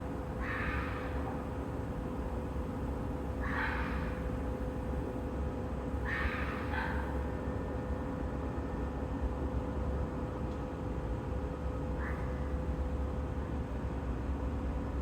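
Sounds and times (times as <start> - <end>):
animal harsh calls: 0.4 - 1.2, 3.4 - 4.2.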